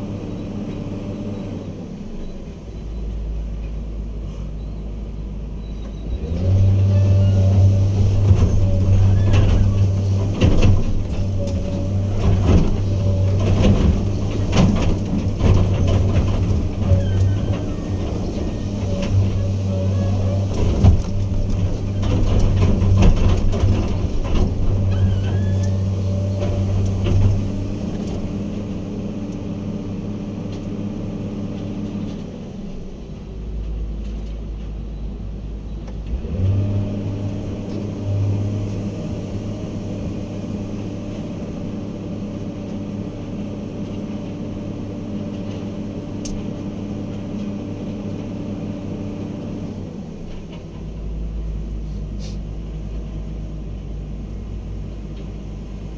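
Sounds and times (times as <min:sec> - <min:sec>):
heavy diesel engine running: 0:00.0 - 0:55.9
metal clanks and knocks: 0:07.6 - 0:28.3.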